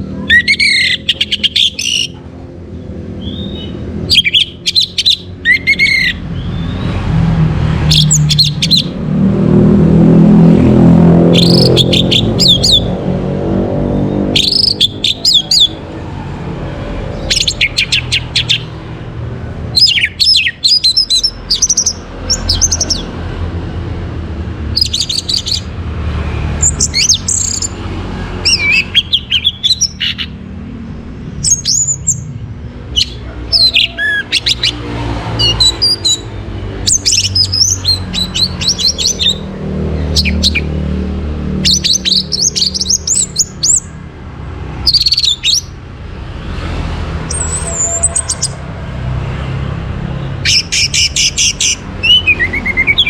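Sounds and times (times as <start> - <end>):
thrush singing: 0.0 - 2.2, 3.1 - 23.6, 50.3 - 53.0.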